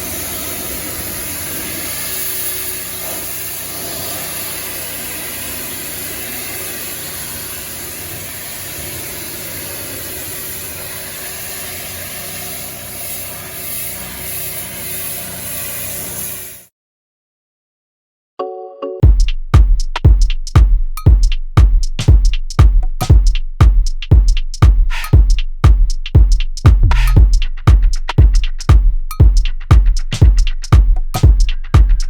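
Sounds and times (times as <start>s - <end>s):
pressure washer engine running: 0.0s - 16.7s
water spray hissing: 0.0s - 16.7s, 24.9s - 25.2s.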